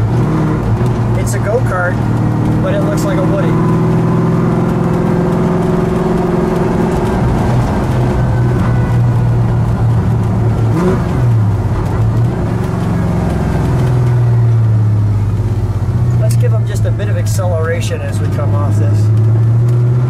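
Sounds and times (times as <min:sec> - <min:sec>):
car engine cruising: 0:00.0 - 0:20.0.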